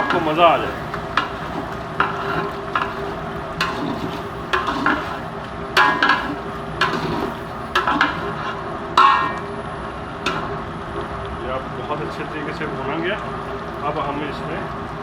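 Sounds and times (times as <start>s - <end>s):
gizzards sizzling in oil: 0.0s - 11.1s
spoon knocking against pot: 9.0s - 9.4s.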